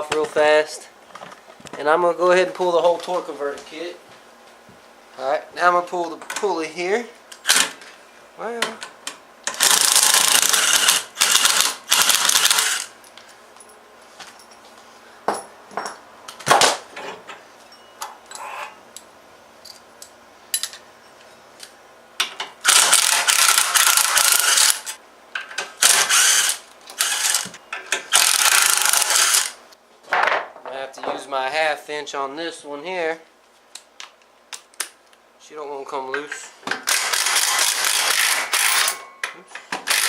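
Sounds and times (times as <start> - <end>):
ratchet wrench clicking: 9.5 - 12.9, 22.7 - 25.0, 28.1 - 29.6.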